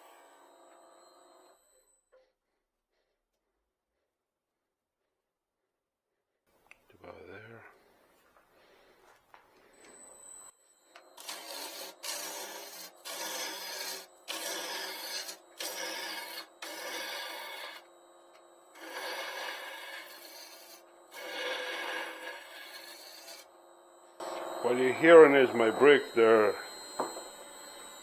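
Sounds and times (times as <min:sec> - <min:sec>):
lathe humming: 0:00.0 - 0:01.6, 0:09.6 - 0:28.0
gouge scraping wood: 0:11.2 - 0:17.9, 0:18.7 - 0:23.5.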